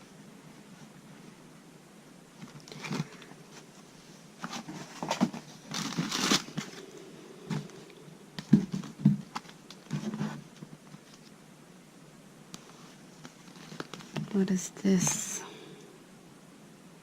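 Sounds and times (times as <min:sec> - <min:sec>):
plastic packaging crinkling: 0:04.4 - 0:06.9, 0:13.2 - 0:14.2.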